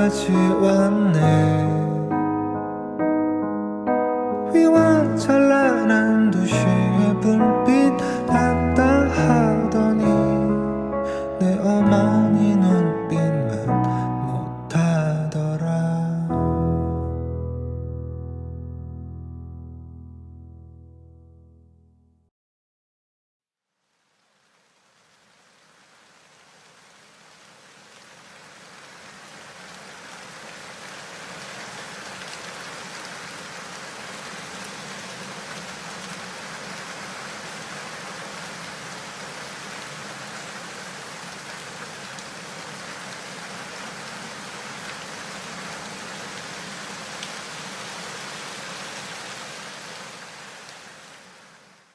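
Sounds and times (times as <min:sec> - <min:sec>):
heavy rain falling: 0:00.0 - 0:01.5, 0:04.6 - 0:13.4, 0:24.0 - 0:51.9.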